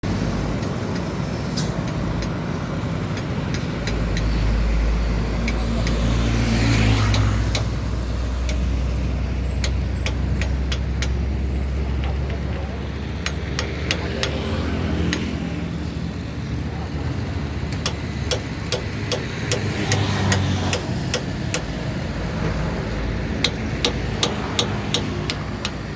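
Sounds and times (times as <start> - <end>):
loud vehicle passing: 0.0 - 25.9
roadside traffic engine drone: 0.0 - 25.9
sharp metal taps: 7.0 - 8.7, 9.4 - 15.3, 17.7 - 21.8, 22.9 - 25.9.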